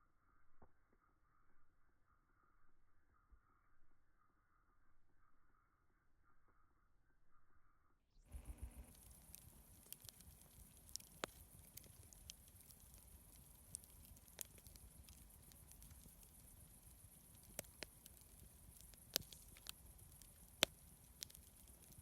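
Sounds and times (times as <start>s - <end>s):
campfire crackling: 8.3s - 22.0s.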